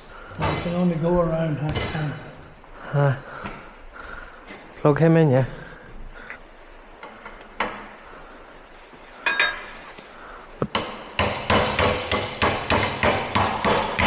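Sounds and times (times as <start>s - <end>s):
hammer striking steel: 10.7s - 14.0s.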